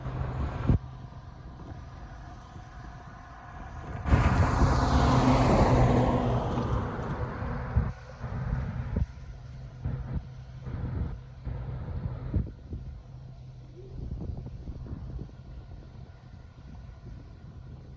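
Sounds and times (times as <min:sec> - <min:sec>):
vehicle passing with road noise: 0:00.0 - 0:12.3
wind buffeting microphone: 0:00.0 - 0:17.9
steady low hum: 0:07.0 - 0:17.9.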